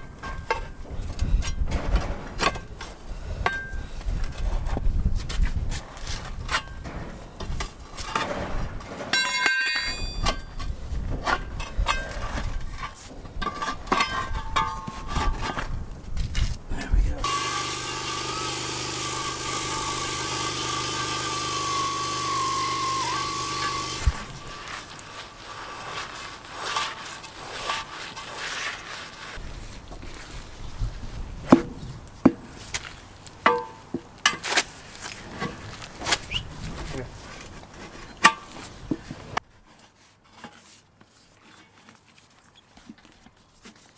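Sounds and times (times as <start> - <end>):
tools clanking against truck wheel: 6.1 - 15.6, 31.5 - 34.7
ringing metallic clang: 9.2 - 10.5.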